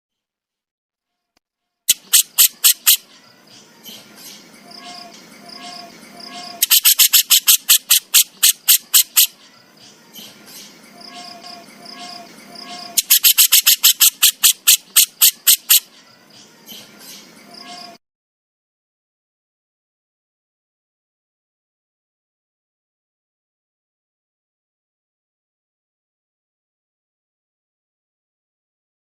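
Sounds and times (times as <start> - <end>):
bird rattling call: 1.9 - 3.1, 5.6 - 9.4, 12.0 - 15.9.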